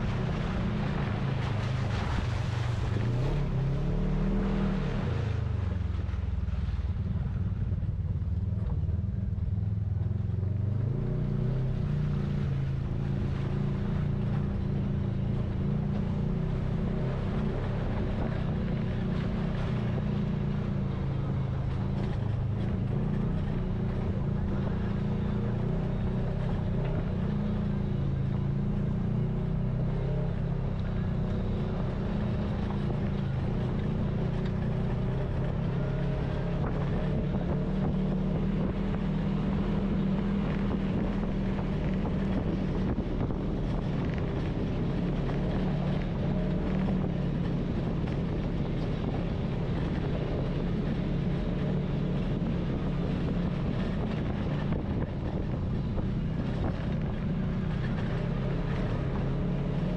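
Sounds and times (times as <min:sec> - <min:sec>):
utility vehicle engine running: 0:00.0 - 0:59.9
wind on microphone: 0:30.5 - 0:59.9.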